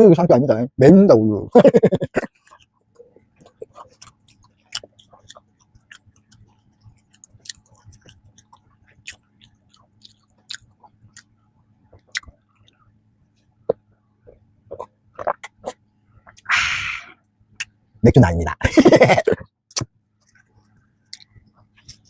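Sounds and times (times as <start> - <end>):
person chewing food: 2.2 - 12.9, 13.6 - 16.5.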